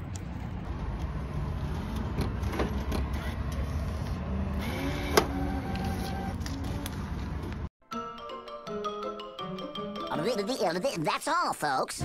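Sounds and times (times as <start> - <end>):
road traffic rumble: 0.0 - 7.7.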